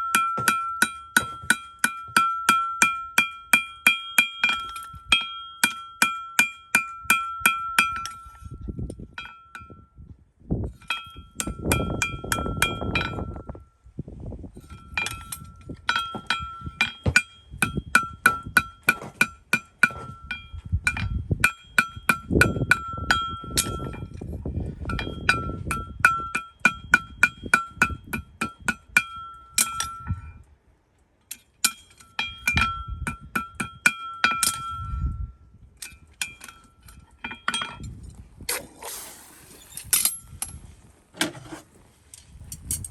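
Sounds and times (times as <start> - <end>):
hammer striking steel: 0.0 - 8.3, 14.7 - 24.1, 24.9 - 30.1, 31.3 - 34.9
dull scraping: 38.0 - 42.3.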